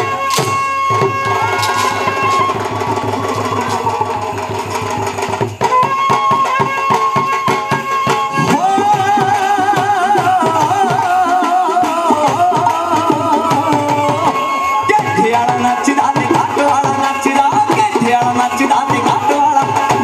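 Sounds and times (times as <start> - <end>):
fast drum beat: 0.0 - 7.7.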